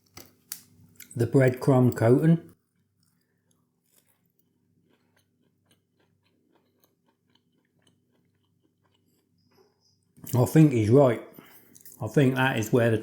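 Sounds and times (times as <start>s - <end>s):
mouth chewing food: 2.8s - 10.6s.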